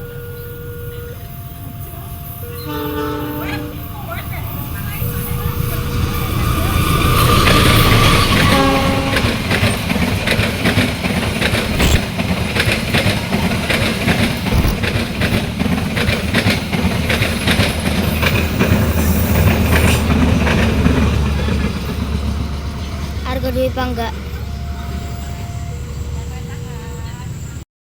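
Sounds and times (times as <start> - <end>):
train horn blast: 0.0 - 9.8
train cars rumbling: 0.0 - 27.6
wheels clacking over rail joints: 5.2 - 24.0.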